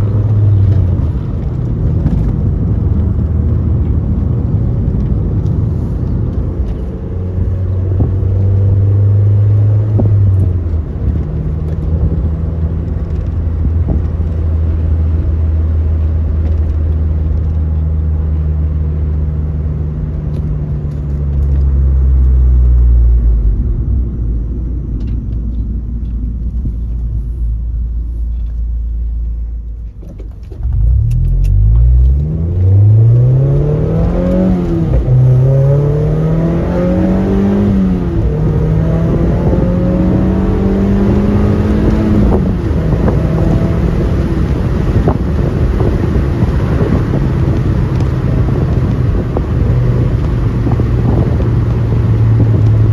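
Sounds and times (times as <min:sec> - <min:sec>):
car engine and exhaust: 0:00.0 - 0:52.9
car engine revving hard: 0:30.7 - 0:52.9.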